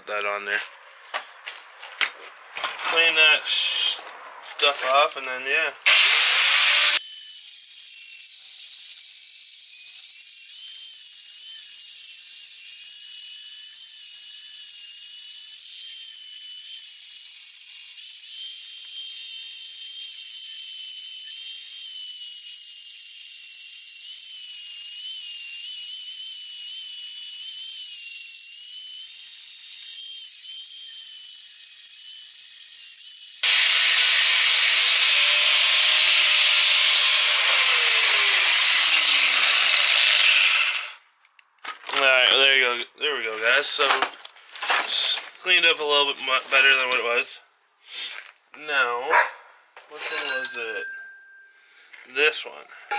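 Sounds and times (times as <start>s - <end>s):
power tool grinding metal: 5.9s - 41.0s.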